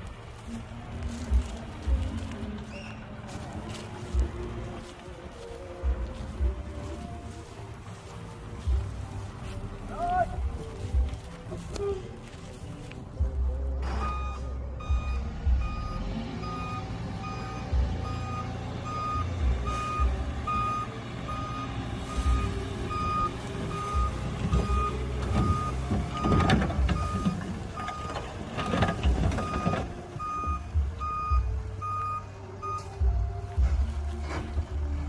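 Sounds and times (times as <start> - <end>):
diesel engine running: 0.0 - 35.0
reverse alarm beeping: 13.9 - 28.2, 28.9 - 32.9.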